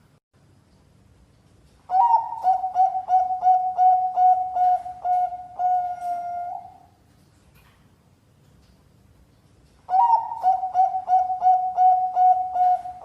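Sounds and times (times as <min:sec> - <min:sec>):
dove cooing: 0:01.9 - 0:07.0, 0:09.9 - 0:13.0.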